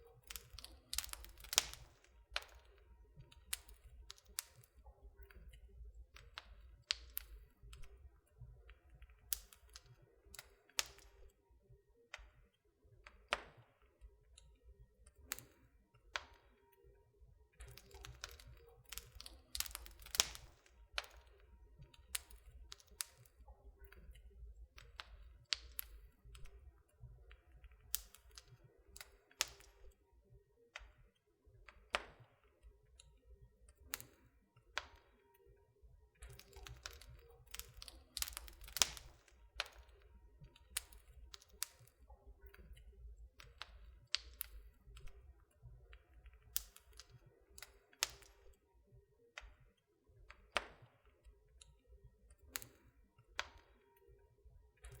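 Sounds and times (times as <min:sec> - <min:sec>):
wood fire crackling: 0:00.0 - 0:11.4, 0:15.0 - 0:16.6, 0:17.5 - 0:30.0, 0:33.7 - 0:35.1, 0:36.2 - 0:48.6, 0:52.3 - 0:54.1.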